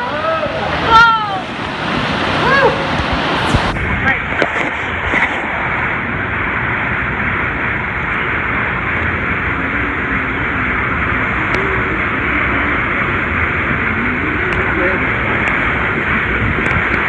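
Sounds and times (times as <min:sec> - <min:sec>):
faint voices: 0:00.0 - 0:04.8, 0:09.7 - 0:16.1
rushing water: 0:00.0 - 0:17.0.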